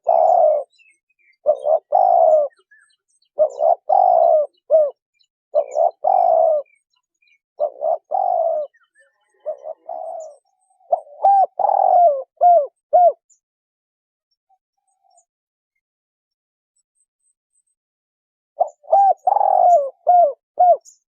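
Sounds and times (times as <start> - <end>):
dove cooing: 0.0 - 13.3, 18.6 - 21.0.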